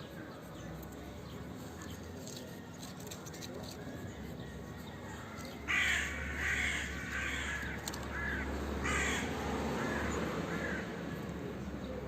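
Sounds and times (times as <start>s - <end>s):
crows cawing: 5.7s - 11.1s.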